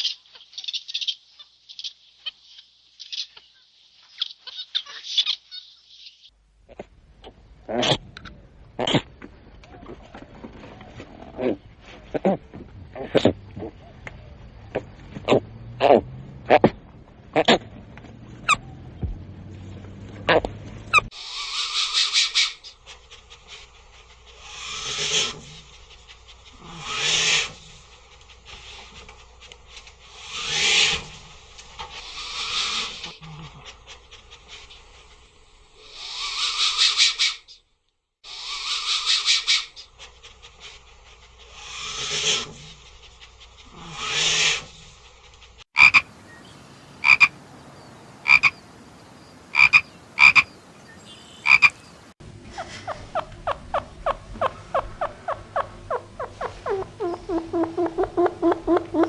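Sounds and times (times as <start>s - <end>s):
animal croaking calls: 6.7s - 9.2s, 14.7s - 17.7s, 26.6s - 27.6s, 41.5s - 42.7s, 45.8s - 50.6s, 51.2s - 51.9s, 52.5s - 59.0s.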